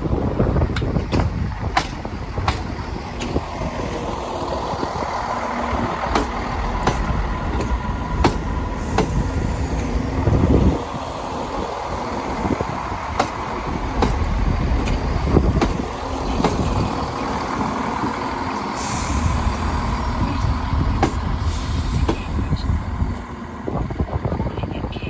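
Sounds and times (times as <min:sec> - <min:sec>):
train rumbling: 0:00.0 - 0:25.0
train wheels clicking: 0:00.1 - 0:23.2.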